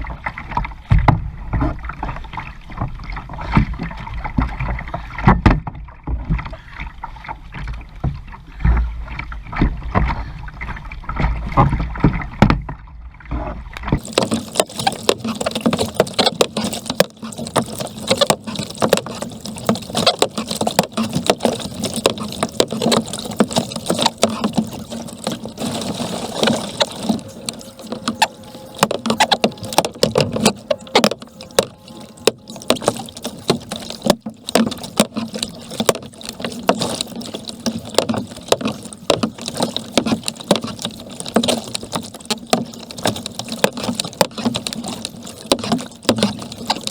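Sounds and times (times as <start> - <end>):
paddle splashing in water: 0.0 - 46.9.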